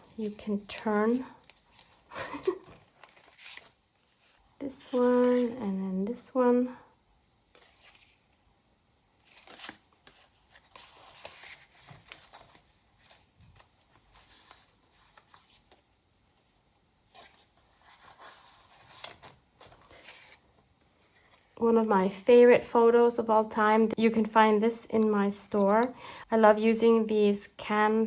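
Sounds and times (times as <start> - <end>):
paper and card rustling: 0.0 - 5.6, 7.5 - 8.3, 9.2 - 15.8, 17.1 - 22.2.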